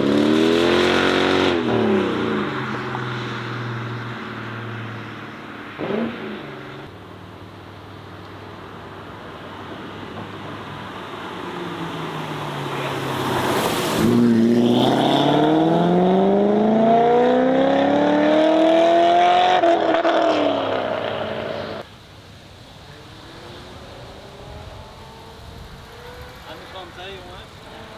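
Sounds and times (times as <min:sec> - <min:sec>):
car engine accelerating: 0:09.1 - 0:21.8, 0:23.0 - 0:27.9.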